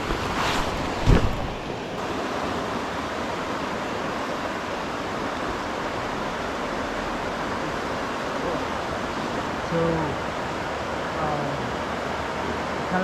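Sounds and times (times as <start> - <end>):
fast-running creek water: 0.0 - 13.0.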